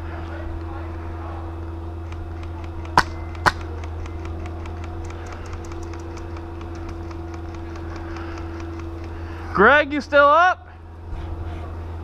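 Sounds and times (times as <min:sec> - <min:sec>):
steady low hum: 0:00.0 - 0:12.0
airsoft gun shots: 0:02.8 - 0:03.7.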